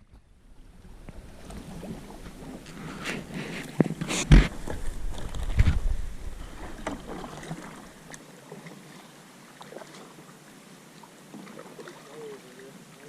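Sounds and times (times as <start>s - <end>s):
paddle splashes and knocks: 0.9s - 9.0s, 11.3s - 12.2s
low rumble: 4.3s - 8.0s.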